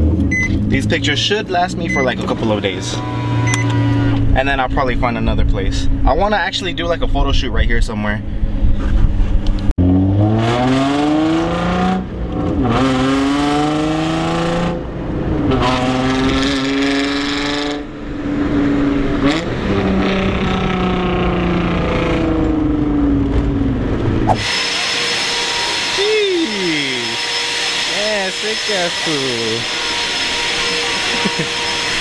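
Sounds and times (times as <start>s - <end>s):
car engine accelerating: 8.2s - 32.0s.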